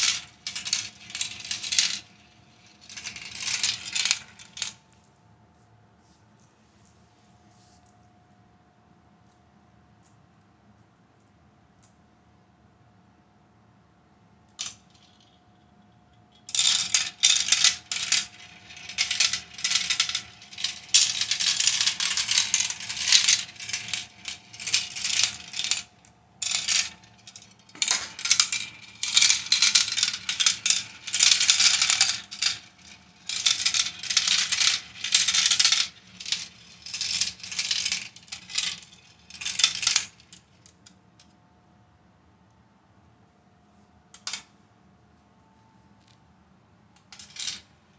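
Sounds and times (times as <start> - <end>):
marbles clattering down a marble run: 0.0 - 4.7, 16.5 - 40.3.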